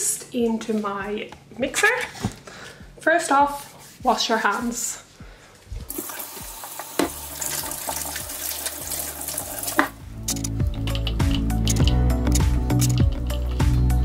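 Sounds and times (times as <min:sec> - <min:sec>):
background music: 0:00.0 - 0:14.0
tap water running: 0:05.9 - 0:10.0.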